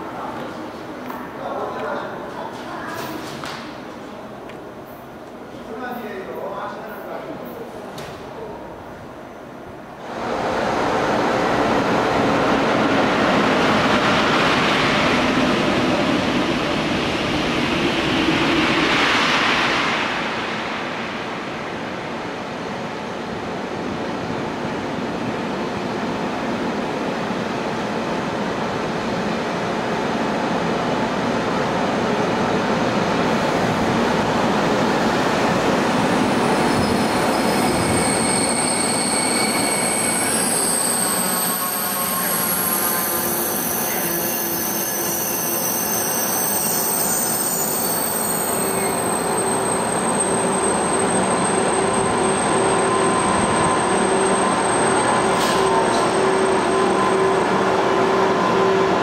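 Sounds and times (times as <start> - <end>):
loud train rush: 0.0 - 59.0
high-pitched squealing from running gear: 36.6 - 57.2.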